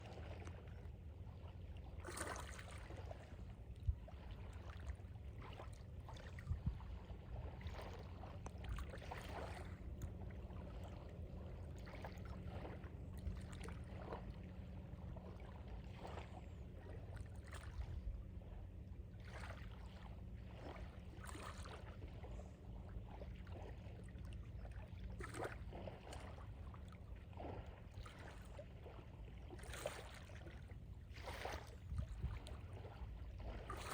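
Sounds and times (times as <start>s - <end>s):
small waves lapping: 0.0s - 33.9s
steady low rumble: 3.2s - 21.2s, 30.4s - 33.9s.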